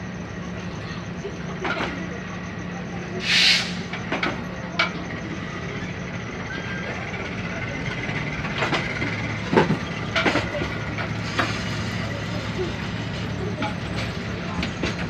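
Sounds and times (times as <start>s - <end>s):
diesel train hum: 0.0s - 15.0s
short hiss: 3.2s - 3.9s.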